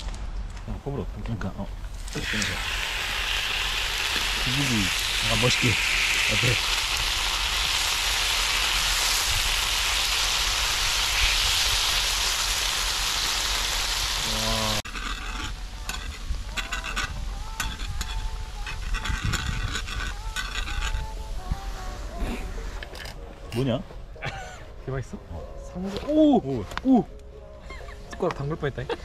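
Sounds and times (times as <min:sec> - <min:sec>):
tofu sizzling in a hot pan: 0:01.9 - 0:14.8.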